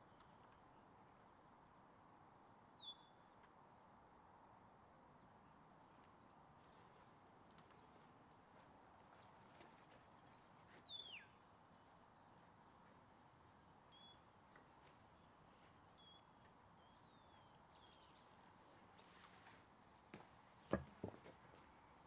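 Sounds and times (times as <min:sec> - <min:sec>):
faint birds whistling: 0:02.6 - 0:03.4, 0:06.6 - 0:19.6.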